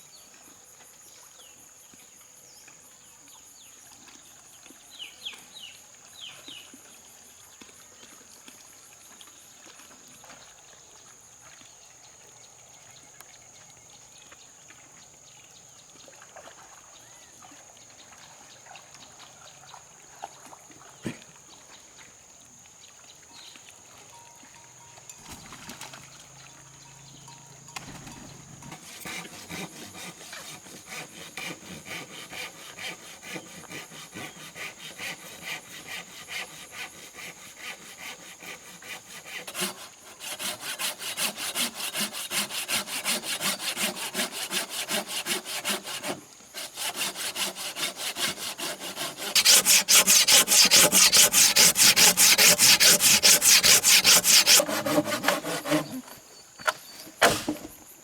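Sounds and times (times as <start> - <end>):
hand saw cutting wood: 28.6 - 56.2.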